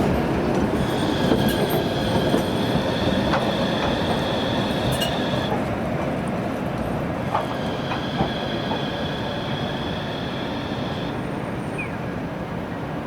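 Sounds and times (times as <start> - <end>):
light clicks from rails: 0.0 - 11.1
tram rumbling: 0.0 - 13.0
high wheel squeal: 0.8 - 5.6, 7.4 - 11.9.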